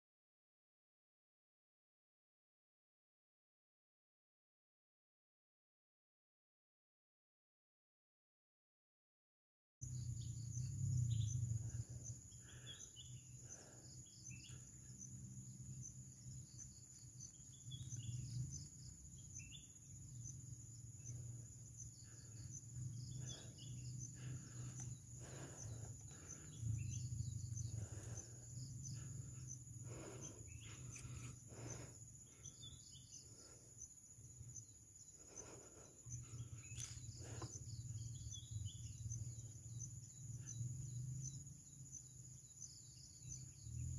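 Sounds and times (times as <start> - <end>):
low hum: 9.8 - 41.8
bird chirps: 9.8 - 43.9
insects trilling: 9.8 - 43.9.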